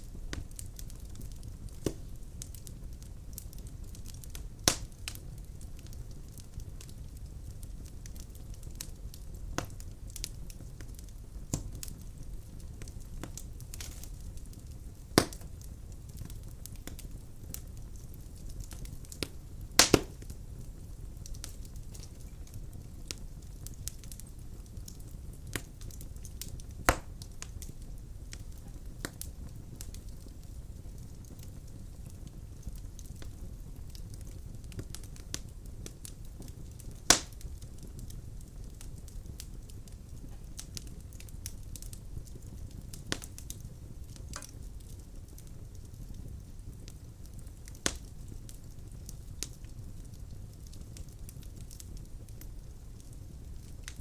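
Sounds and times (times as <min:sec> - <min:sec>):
fire crackling and popping: 0:00.0 - 0:54.0
fire roaring in fireplace: 0:00.0 - 0:54.0.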